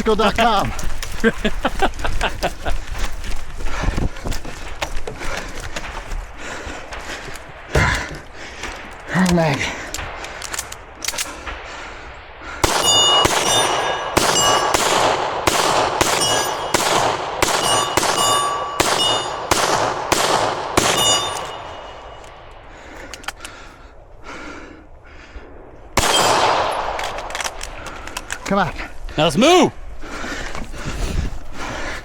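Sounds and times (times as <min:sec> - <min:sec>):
gunshots: 0:09.1 - 0:22.2, 0:26.0 - 0:27.9
steel target ringing: 0:12.7 - 0:15.1, 0:16.0 - 0:19.6, 0:20.8 - 0:22.2.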